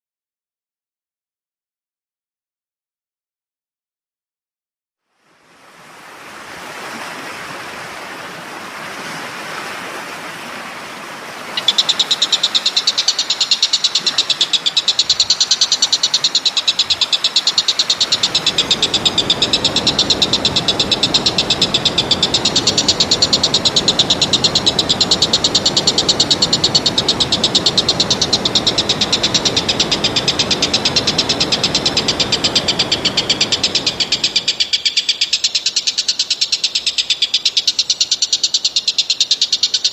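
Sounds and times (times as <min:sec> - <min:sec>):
rushing background noise: 0:10.8 - 0:39.9
high-pitched pulsing trill: 0:11.6 - 0:39.9.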